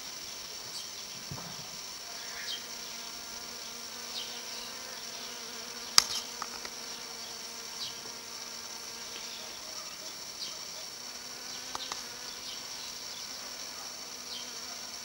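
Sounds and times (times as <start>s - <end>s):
flying insect buzzing: 0.0s - 15.0s
shrill insect chorus: 0.0s - 15.0s
sharp click: 6.0s - 6.8s, 11.7s - 12.1s.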